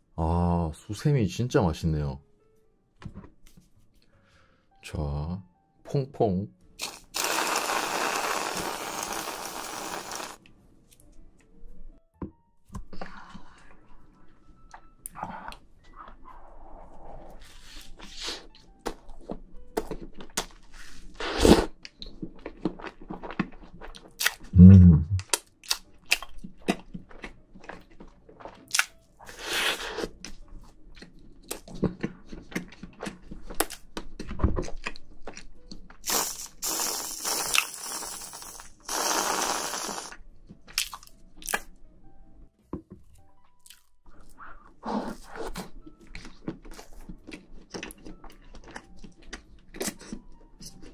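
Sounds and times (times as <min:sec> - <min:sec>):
person chewing cake: 0:21.5 - 0:36.0, 0:40.6 - 0:41.7, 0:43.6 - 0:50.9.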